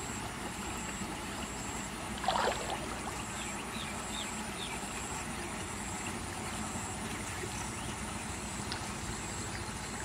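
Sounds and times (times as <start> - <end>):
outdoor background noise: 0.0 - 10.0
small birds chirping: 2.9 - 6.2.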